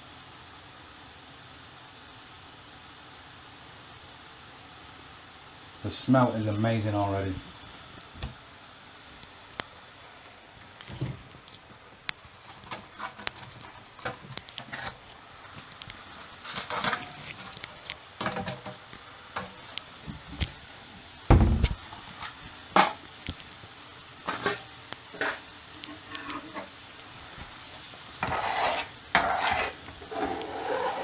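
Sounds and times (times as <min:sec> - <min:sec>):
pan and utensils clicking: 0:12.4 - 0:19.9, 0:22.0 - 0:23.4, 0:24.2 - 0:26.8
deep thump: 0:21.3 - 0:21.8.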